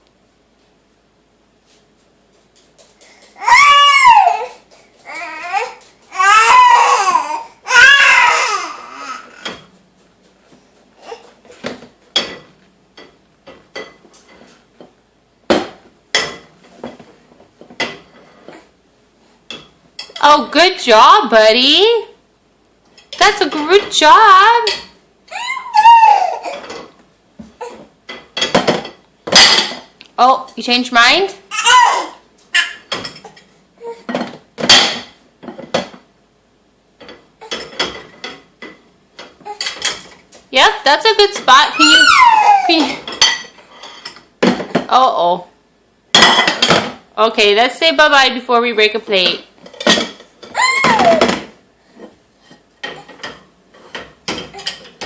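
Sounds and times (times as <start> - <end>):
dishes clattering in dishwasher: 6.3 - 9.8, 11.0 - 18.7, 23.0 - 27.0, 27.6 - 30.7, 31.6 - 36.1, 37.0 - 40.2, 41.2 - 44.9, 46.1 - 47.0, 49.2 - 55.0.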